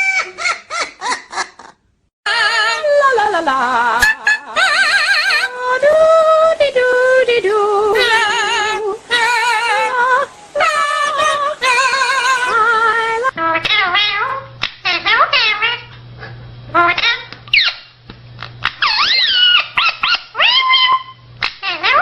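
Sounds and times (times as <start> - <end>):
person singing wordlessly: 2.3 - 13.9.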